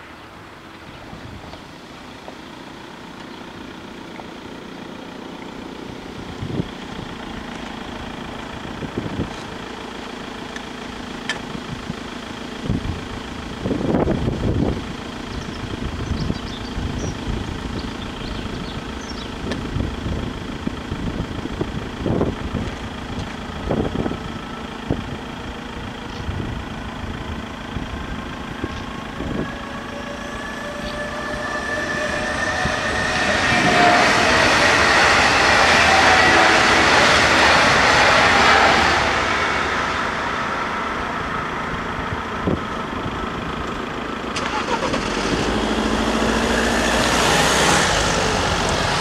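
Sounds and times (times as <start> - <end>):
whining tones: 21.5 - 49.0
train passing: 26.7 - 49.0.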